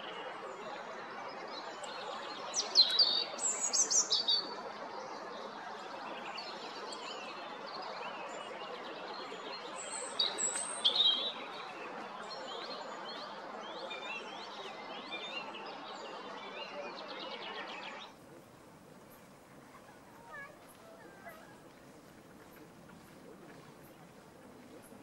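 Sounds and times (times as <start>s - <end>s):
robin singing warbled phrases: 19.1s - 25.0s.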